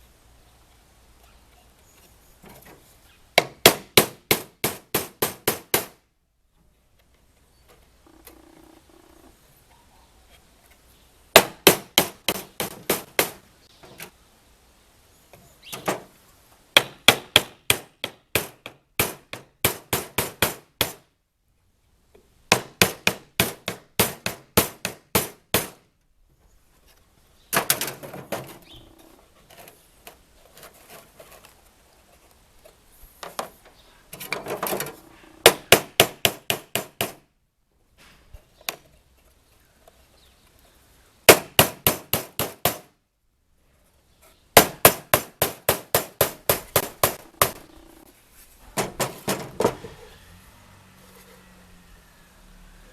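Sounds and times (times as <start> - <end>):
hammer driving nails into wood: 3.4 - 6.0, 11.4 - 13.4, 16.8 - 21.0, 22.5 - 25.8, 35.5 - 37.2, 41.3 - 42.9, 44.6 - 47.6, 48.8 - 49.8
rough scraping noise: 46.9 - 52.9.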